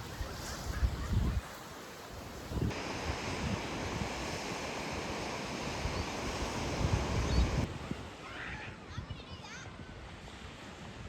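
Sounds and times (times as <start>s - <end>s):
wind buffeting microphone: 0.0s - 1.6s, 2.3s - 8.1s
surf rushing: 0.0s - 8.2s.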